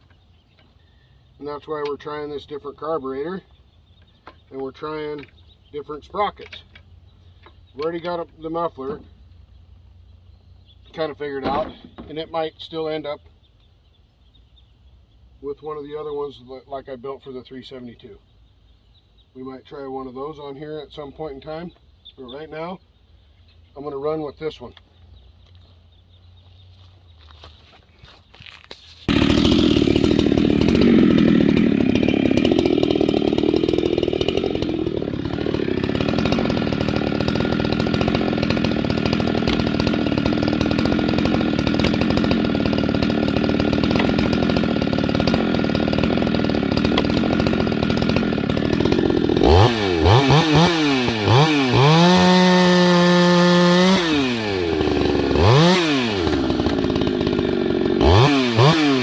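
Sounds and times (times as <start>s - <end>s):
chainsaw revving: 29.1s - 59.0s.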